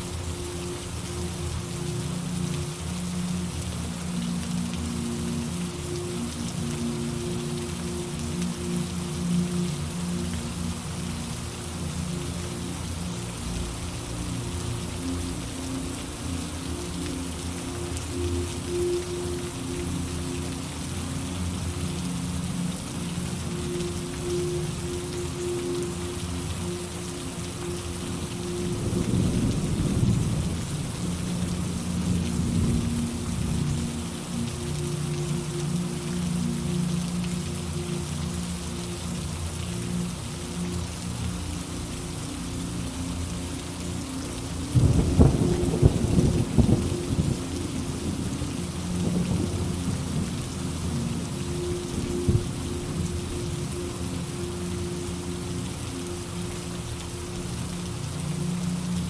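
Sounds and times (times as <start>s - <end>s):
steady rain: 0.0s - 59.0s
low rumble of thunder: 28.7s - 33.8s, 44.8s - 47.6s
thunder rumbling: 44.8s - 47.5s.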